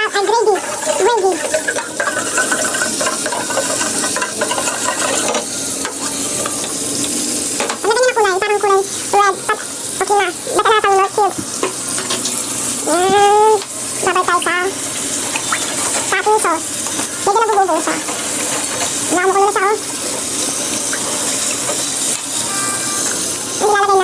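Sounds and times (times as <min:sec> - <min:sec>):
gravy sizzling: 0:00.0 - 0:24.0.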